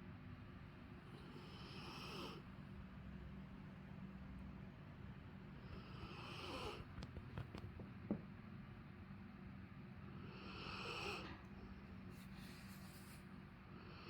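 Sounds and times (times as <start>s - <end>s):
dog snoring softly: 1.0s - 2.6s, 5.4s - 7.6s, 10.0s - 12.3s.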